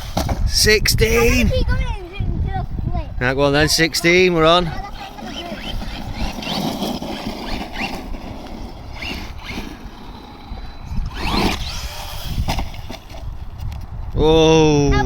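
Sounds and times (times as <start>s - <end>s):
electric motor revving whine: 4.8s - 13.5s.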